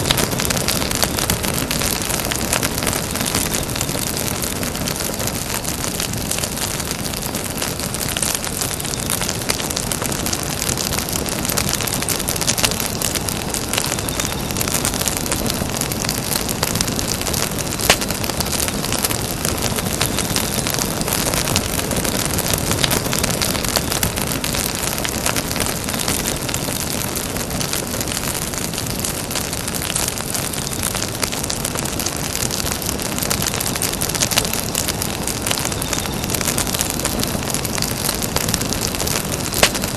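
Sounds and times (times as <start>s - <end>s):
campfire crackling: 0.0s - 39.9s
loud fire pop: 34.3s - 39.9s.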